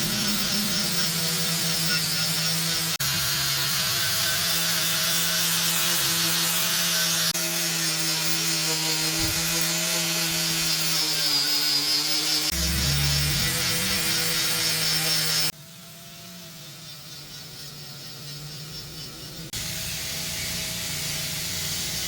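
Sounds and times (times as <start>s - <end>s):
small electric power tool sanding: 0.0s - 22.0s.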